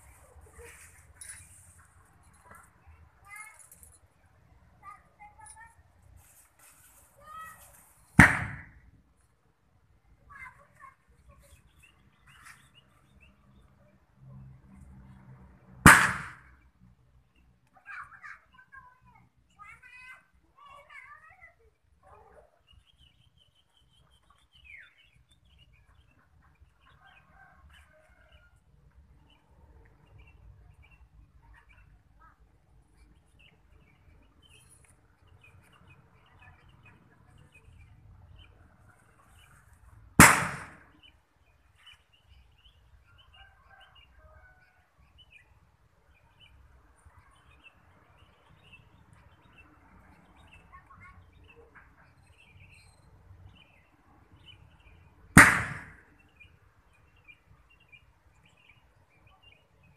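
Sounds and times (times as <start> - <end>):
loud sharp bang: 8.2 - 8.8, 15.8 - 16.6, 40.2 - 40.9, 55.4 - 56.0.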